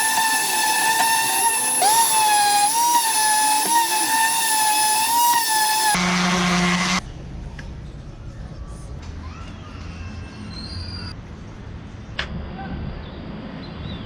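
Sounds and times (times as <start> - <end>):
power tool motor whining: 0.0 - 7.0.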